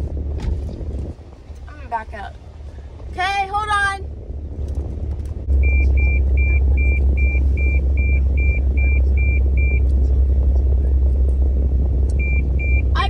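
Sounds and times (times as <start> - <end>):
car low rumble: 0.0 - 13.0
car warning chime beeping: 5.6 - 9.8, 12.2 - 13.0.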